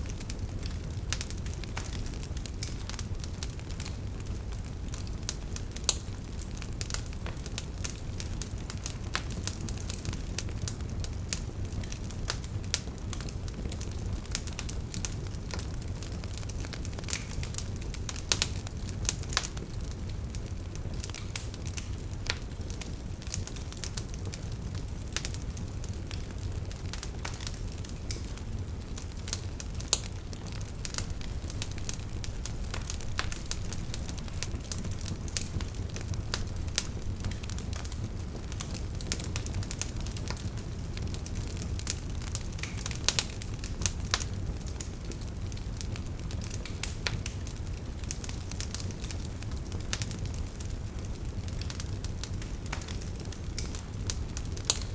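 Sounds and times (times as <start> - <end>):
campfire crackling and popping: 0.0 - 54.9
low rumble of flames: 0.0 - 54.9.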